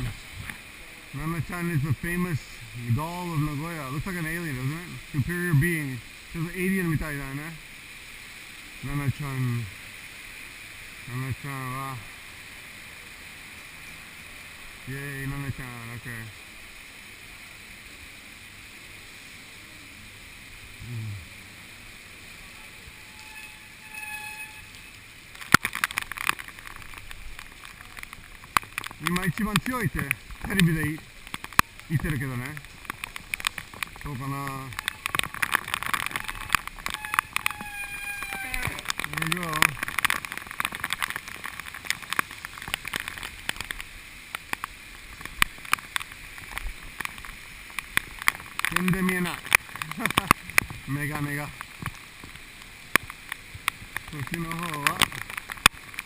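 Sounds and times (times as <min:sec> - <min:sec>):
raindrops tapping camera housing: 0:00.0 - 0:08.0, 0:08.6 - 0:17.1, 0:20.5 - 0:56.0
wind and rain rushing: 0:00.0 - 0:56.0.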